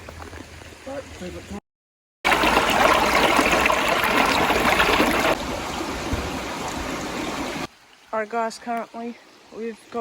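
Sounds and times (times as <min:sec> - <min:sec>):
rushing water: 0:02.3 - 0:10.0.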